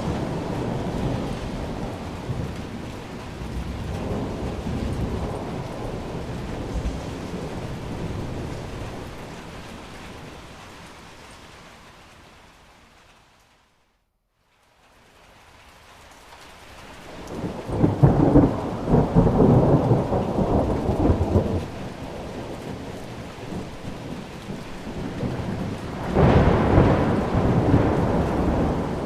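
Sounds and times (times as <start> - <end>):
thunder rolling: 0.0 - 11.1, 17.1 - 29.0
steady rain: 0.0 - 29.0.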